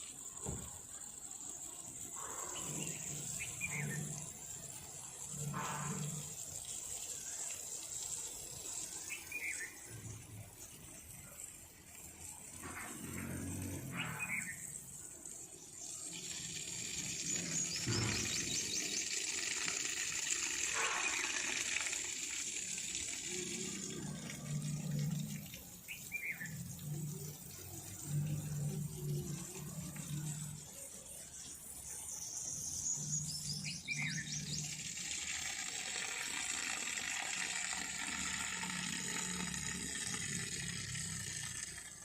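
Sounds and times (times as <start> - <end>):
running water: 0.0 - 42.0
birds chirping: 1.6 - 4.2, 12.6 - 19.7, 25.1 - 35.2.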